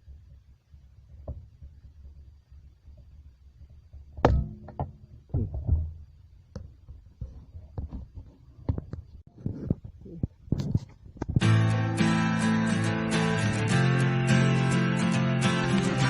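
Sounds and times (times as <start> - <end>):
thud: 4.2 - 8.1.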